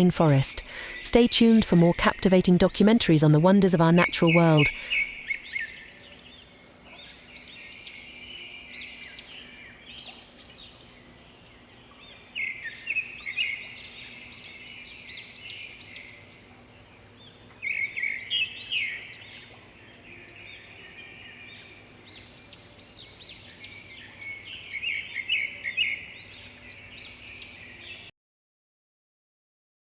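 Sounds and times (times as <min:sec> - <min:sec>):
birds chirping and calling: 0:00.0 - 0:28.1.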